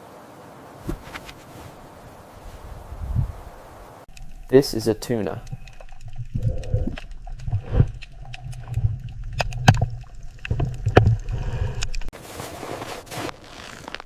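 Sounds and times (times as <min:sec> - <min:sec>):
water sloshing and splashing: 0:04.1 - 0:12.1.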